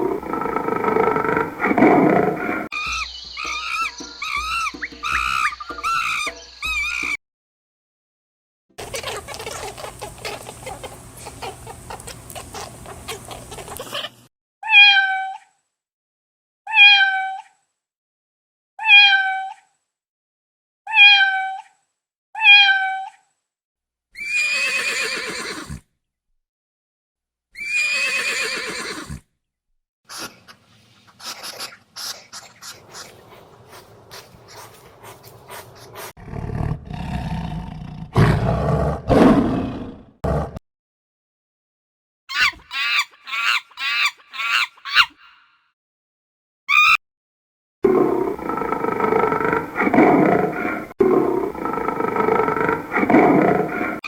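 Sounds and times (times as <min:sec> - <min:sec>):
long wavering animal calls: 0:00.0 - 0:07.2, 0:42.3 - 0:45.5
cat meowing: 0:14.6 - 0:15.4, 0:16.7 - 0:17.5, 0:18.8 - 0:19.6, 0:20.9 - 0:21.6, 0:22.4 - 0:23.1.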